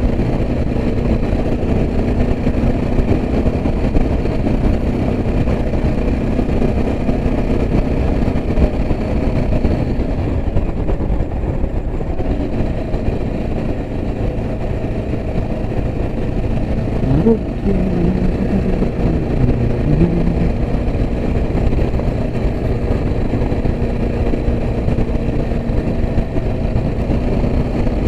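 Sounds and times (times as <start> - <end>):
motorcycle engine running: 12.0 - 28.0.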